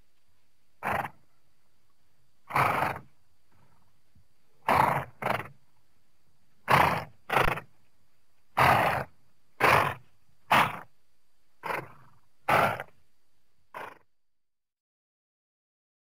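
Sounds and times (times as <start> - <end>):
horse harsh vocal bursts: 6.7 - 7.7, 8.6 - 10.9, 11.6 - 12.9.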